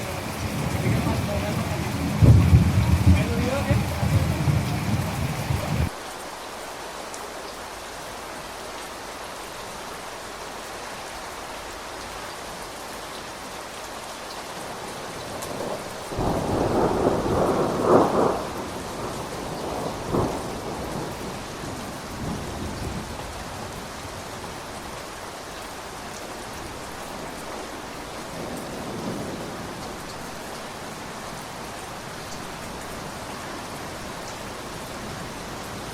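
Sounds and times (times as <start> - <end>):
thunder rolling and cracking: 0.0 - 5.9, 15.5 - 23.7
steady rain falling: 0.0 - 35.9.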